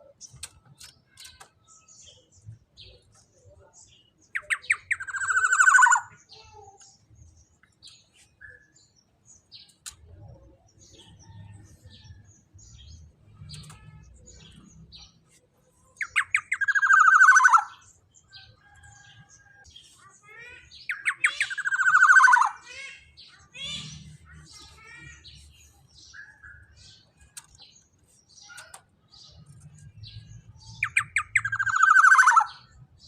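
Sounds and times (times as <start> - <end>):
faint bird chirps: 0.0 - 33.0
bird harsh rasping calls: 4.4 - 6.2, 16.0 - 17.9, 20.0 - 27.0, 30.7 - 32.8.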